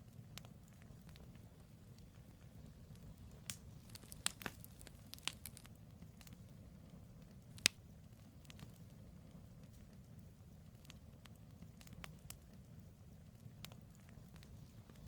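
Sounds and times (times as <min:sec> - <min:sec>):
campfire popping and crackling: 0:00.0 - 0:15.0.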